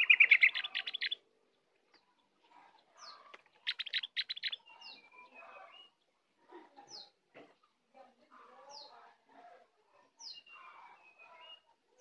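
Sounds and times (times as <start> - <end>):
bird singing: 0.0 - 2.2, 3.0 - 6.0.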